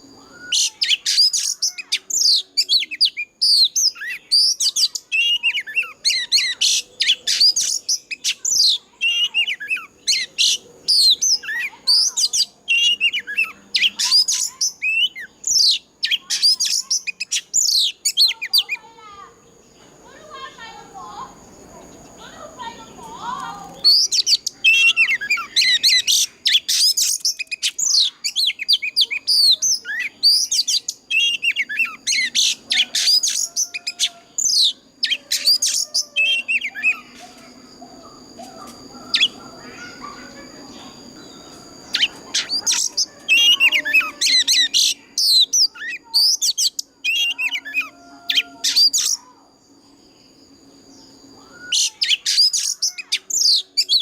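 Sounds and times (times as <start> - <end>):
bird singing whistled phrases: 0.0 - 18.8, 23.3 - 49.5, 50.9 - 54.0.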